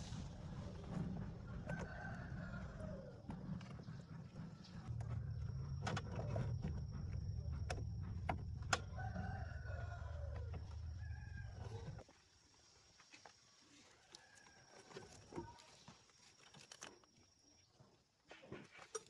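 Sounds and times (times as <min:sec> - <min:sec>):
low steady rumble: 0:00.0 - 0:12.0
rooster crowing: 0:01.4 - 0:03.3, 0:08.6 - 0:12.0.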